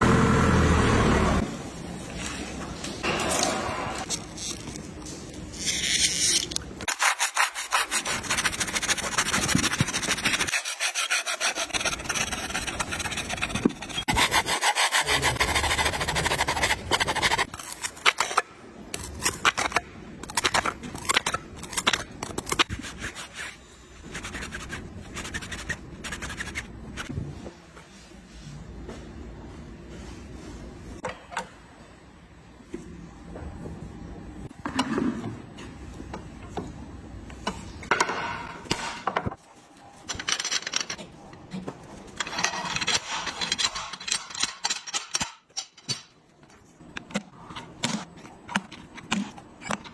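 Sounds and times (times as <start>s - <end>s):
metal rasping and scraping: 5.7s - 18.0s.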